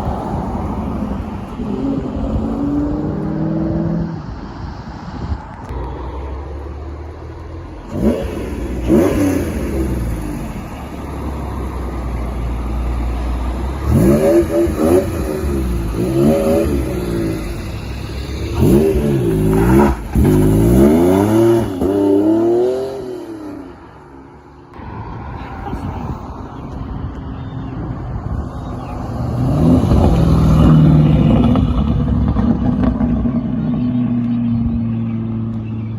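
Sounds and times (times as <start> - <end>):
sports car engine revving: 7.8 - 23.9.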